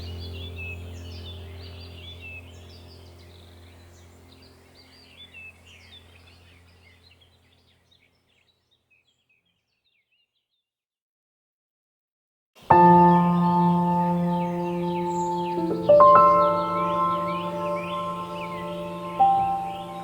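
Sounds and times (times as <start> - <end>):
low steady drone: 0.0 - 6.9, 12.7 - 20.0
birds chirping: 0.0 - 10.4, 12.6 - 20.0.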